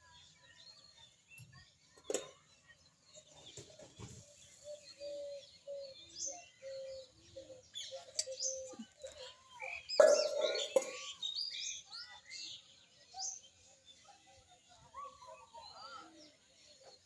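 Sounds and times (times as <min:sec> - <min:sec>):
high bird chirps: 0:04.5 - 0:13.5.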